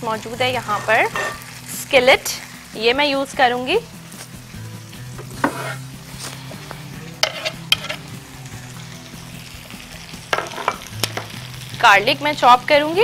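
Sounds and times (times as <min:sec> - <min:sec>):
chicken sizzling in a pan: 0:00.0 - 0:13.0
cookware knocks and clinks: 0:10.4 - 0:11.3.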